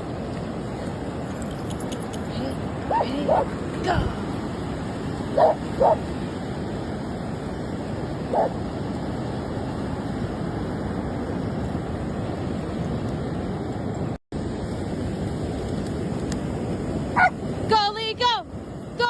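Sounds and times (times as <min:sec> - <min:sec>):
surf rushing: 0:00.0 - 0:19.0
dog barking: 0:02.9 - 0:03.5, 0:05.4 - 0:06.0, 0:08.3 - 0:08.5, 0:17.2 - 0:17.4.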